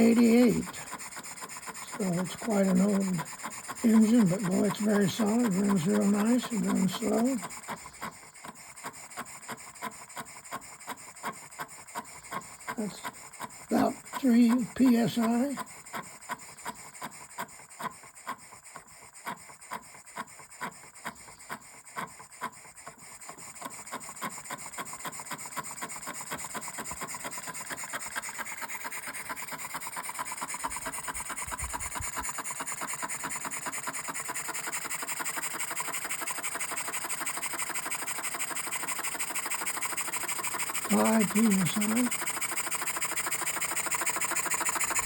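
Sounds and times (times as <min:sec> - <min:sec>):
small steam engine chuffing: 0:00.0 - 0:45.0.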